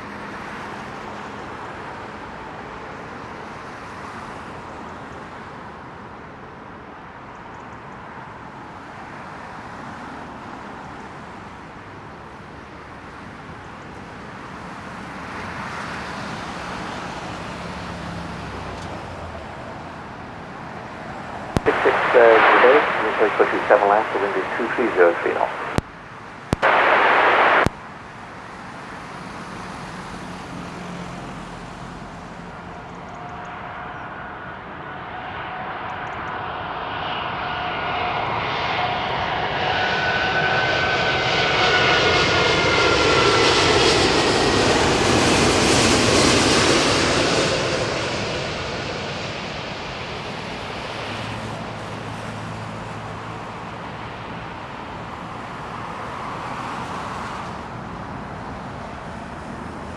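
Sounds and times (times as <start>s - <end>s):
radio static burst: 21.6s - 25.8s, 26.6s - 27.8s
jet airliner passing by: 21.7s - 25.8s, 26.6s - 27.7s, 32.9s - 52.7s.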